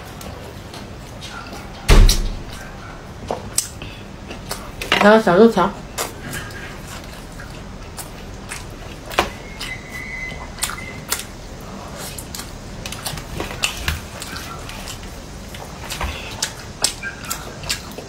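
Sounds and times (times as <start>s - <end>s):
chewing meat: 2.5s - 4.9s, 5.8s - 18.0s
wet mouth clicks and smacks: 16.4s - 18.0s.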